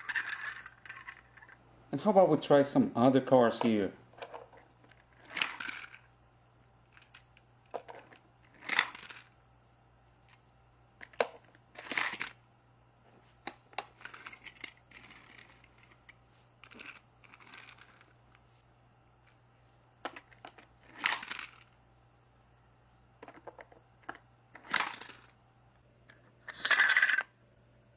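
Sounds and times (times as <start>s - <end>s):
plastic toys clicking and clattering: 0.0s - 1.6s, 3.6s - 6.1s, 6.9s - 9.4s, 11.0s - 12.4s, 13.5s - 18.2s, 20.0s - 21.8s, 23.2s - 25.4s, 26.1s - 27.4s.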